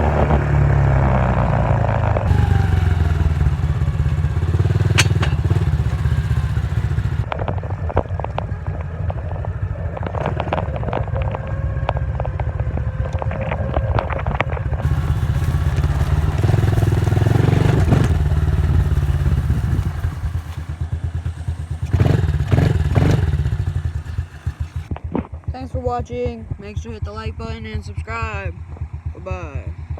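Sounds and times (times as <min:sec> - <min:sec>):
dirt bike engine running: 0:00.0 - 0:29.9
rapid clicking and clattering: 0:02.3 - 0:07.3.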